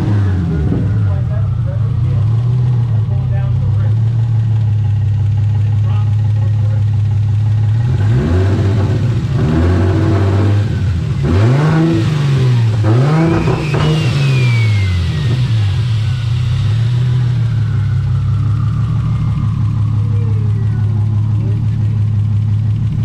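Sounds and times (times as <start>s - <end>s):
car engine idling and revving: 0.0s - 23.0s
turbo whistle: 12.8s - 21.4s.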